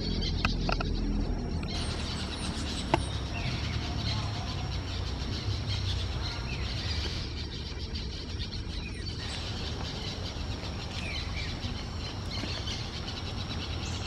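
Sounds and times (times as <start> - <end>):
steady low rumble: 0.0 - 14.0
dense high chatter: 3.2 - 8.2.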